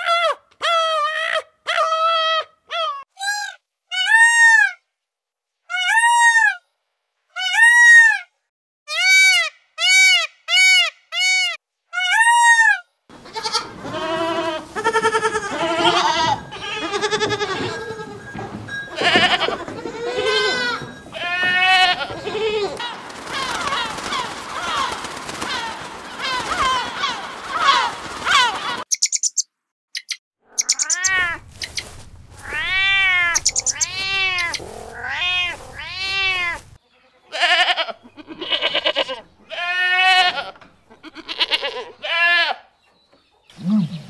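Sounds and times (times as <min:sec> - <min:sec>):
goats bleating: 0:13.1 - 0:28.7, 0:32.4 - 0:36.7, 0:37.3 - 0:42.7.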